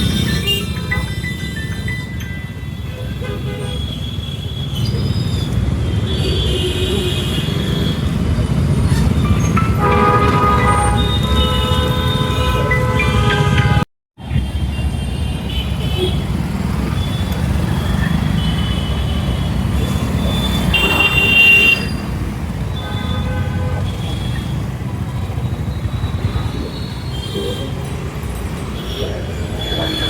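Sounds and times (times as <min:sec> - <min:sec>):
vehicle horns honking: 0:02.9 - 0:08.3, 0:09.5 - 0:13.9, 0:14.6 - 0:28.1
wind and road rumble: 0:15.4 - 0:22.8.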